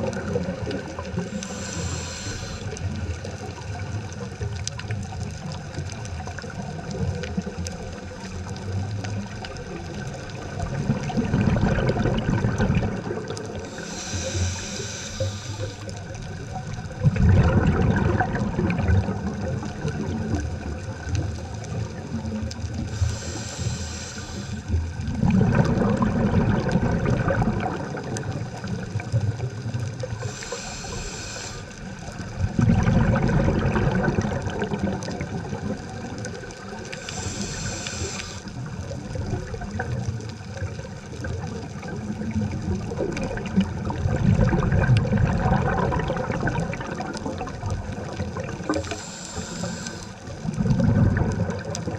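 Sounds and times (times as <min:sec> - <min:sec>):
gurgle of exhaled bubbles: 0:00.0 - 0:51.9
regulator inhale hiss: 0:01.0 - 0:03.3, 0:13.4 - 0:16.6, 0:22.7 - 0:25.0, 0:30.0 - 0:32.2, 0:36.5 - 0:39.0, 0:47.4 - 0:50.4.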